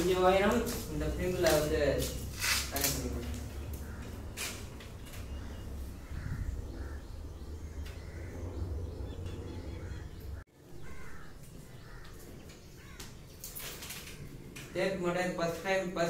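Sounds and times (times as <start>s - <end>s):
faint bird calls: 2.4s - 13.5s.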